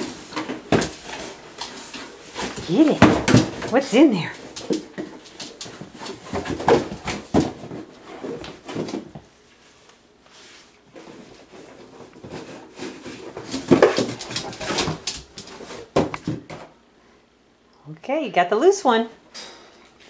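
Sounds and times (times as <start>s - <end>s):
knocks and rustles: 0.0s - 9.4s, 10.9s - 16.8s.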